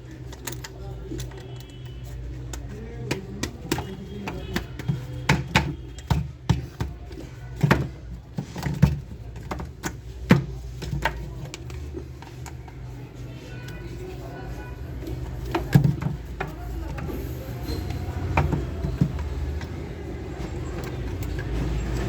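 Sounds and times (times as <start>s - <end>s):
plastic toy parts clicking: 0.0s - 13.0s.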